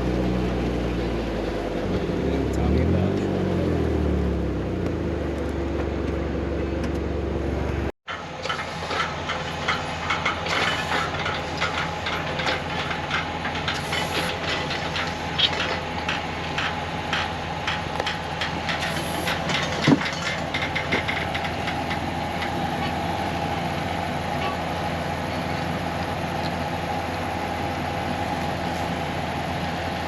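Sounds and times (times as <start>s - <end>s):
heavy machinery hum: 0.0s - 30.0s
machine engine running: 0.0s - 30.0s
metallic clattering and knocking: 8.1s - 23.1s.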